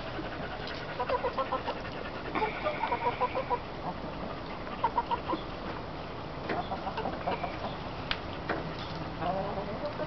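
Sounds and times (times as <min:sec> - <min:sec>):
chickens clucking: 0:00.5 - 0:07.9.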